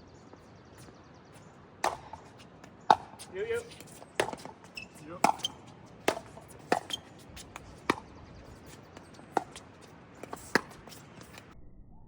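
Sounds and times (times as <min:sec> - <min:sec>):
paddles hitting plastic ball: 0:01.8 - 0:11.4.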